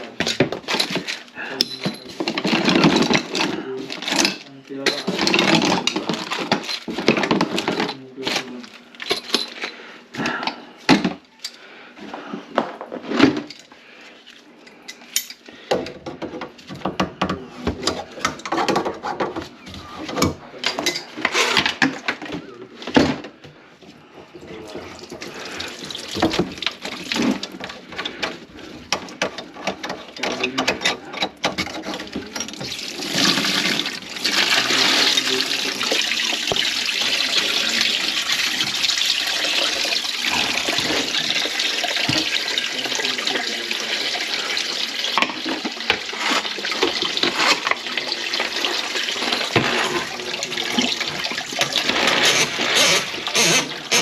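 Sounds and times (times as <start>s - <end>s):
dishes clattering at a sink: 0.0s - 8.0s, 14.7s - 23.4s, 24.5s - 54.0s
water running into a sink: 24.8s - 27.5s, 32.3s - 54.0s.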